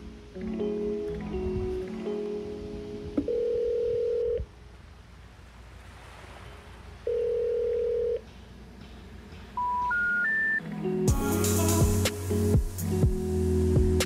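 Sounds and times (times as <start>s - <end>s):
electronic beeps: 9.6s - 10.6s.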